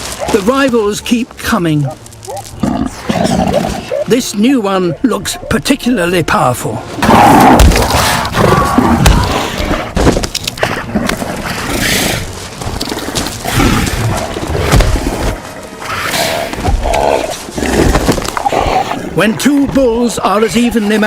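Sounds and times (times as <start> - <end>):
seals giving throaty calls: 13.4 - 19.4.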